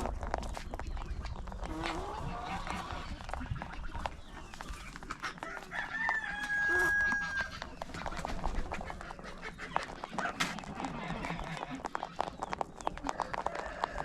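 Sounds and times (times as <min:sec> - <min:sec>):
rooster crowing: 0:05.4 - 0:07.5, 0:13.4 - 0:14.0.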